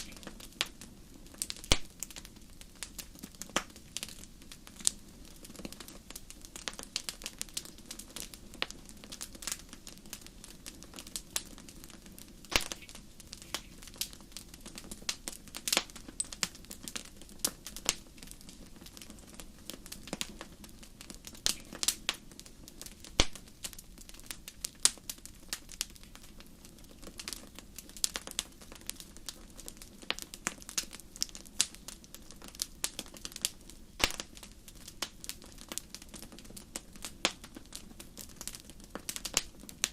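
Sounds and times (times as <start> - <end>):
sharp pops of burning wood: 0.0 - 39.9
wood fire crackling: 0.0 - 39.9.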